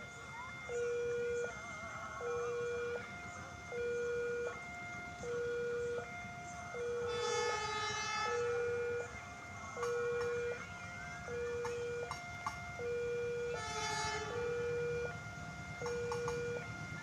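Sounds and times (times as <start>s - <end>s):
level crossing alarm: 0.0s - 17.0s
train horn: 6.9s - 9.2s, 13.4s - 14.7s.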